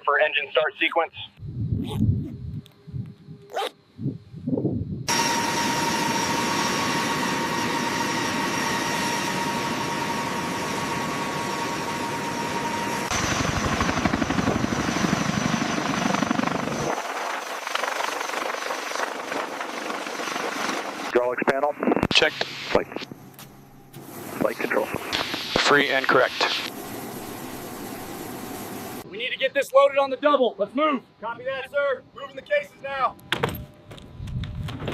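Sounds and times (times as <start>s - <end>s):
helicopter turbine whine: 0.7s - 33.1s
helicopter rotor beating: 1.8s - 21.2s, 23.0s - 29.4s.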